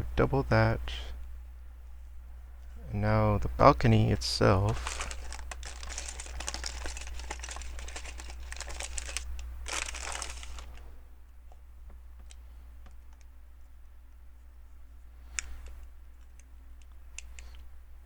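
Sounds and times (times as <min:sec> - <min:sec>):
plastic crinkling and rustling: 0:04.6 - 0:10.8.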